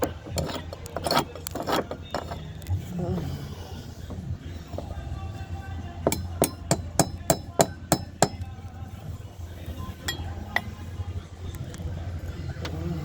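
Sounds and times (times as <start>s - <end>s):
mallet striking caulking iron: 6.1s - 8.5s.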